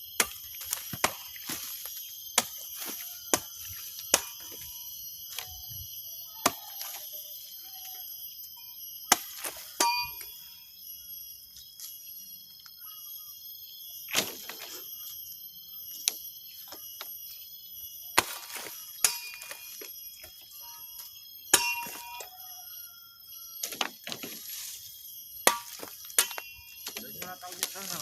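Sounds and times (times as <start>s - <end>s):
machete striking metallically: 9.8s - 10.2s, 19.0s - 19.6s, 21.5s - 22.2s.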